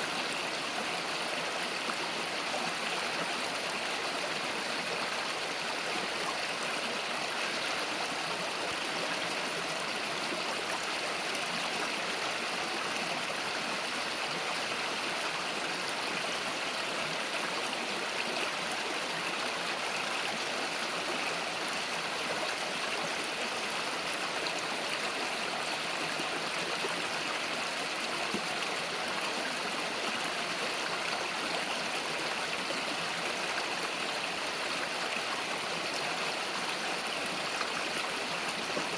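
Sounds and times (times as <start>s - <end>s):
river flowing over rocks: 0.0s - 38.9s.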